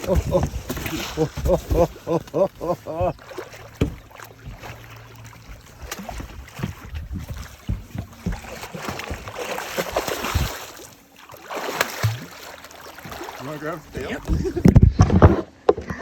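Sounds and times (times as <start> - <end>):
knocks against a boat: 0.0 - 10.6, 13.9 - 16.0
water splashing: 0.0 - 15.4.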